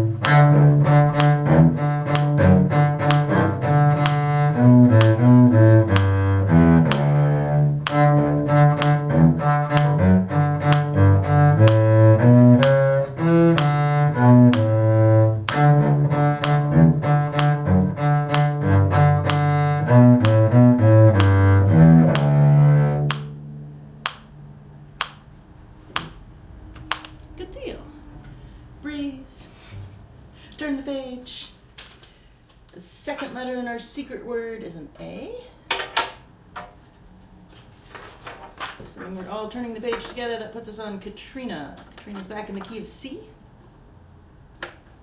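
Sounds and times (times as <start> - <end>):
bowed string instrument melody: 0.0 - 25.1.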